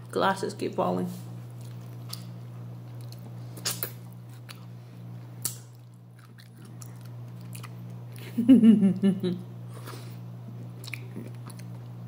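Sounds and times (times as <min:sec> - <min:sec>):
low electrical hum: 0:00.0 - 0:12.0
person chewing food: 0:01.5 - 0:08.3, 0:09.7 - 0:12.0.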